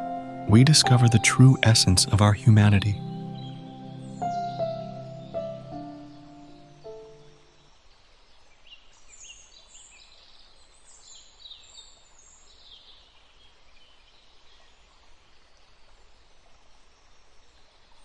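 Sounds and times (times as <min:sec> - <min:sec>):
soft background hiss: 0:00.0 - 0:03.2
faint birdsong chirps and trills: 0:00.0 - 0:18.0.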